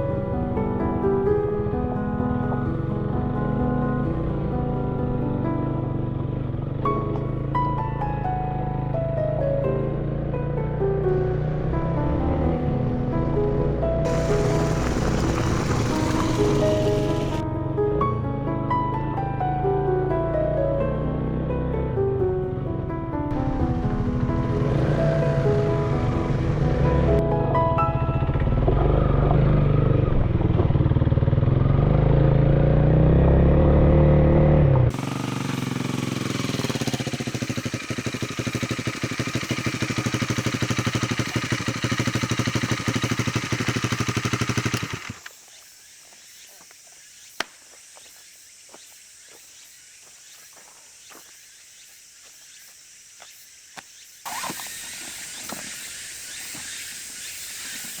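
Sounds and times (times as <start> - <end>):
motorcycle engine: 0.0 - 18.2, 20.4 - 45.6, 54.2 - 58.0.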